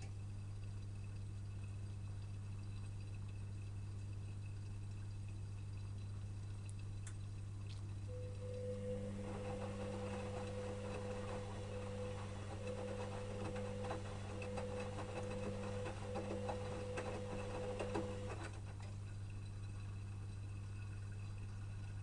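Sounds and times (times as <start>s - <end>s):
steady low hum: 0.0s - 22.0s
washing machine motor whine: 7.9s - 22.0s.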